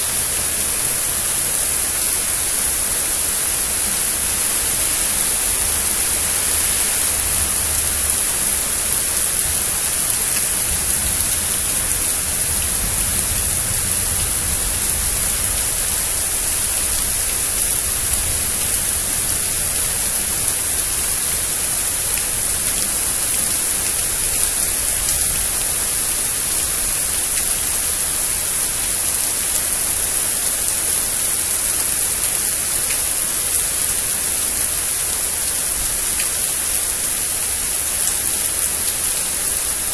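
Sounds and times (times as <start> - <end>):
heavy rain: 0.0 - 39.9
faint low rumble: 10.4 - 20.4.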